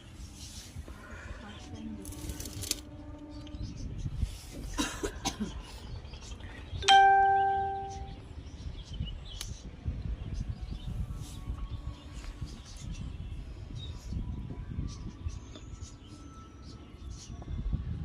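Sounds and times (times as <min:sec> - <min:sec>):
bell-like ding: 0:06.8 - 0:08.2.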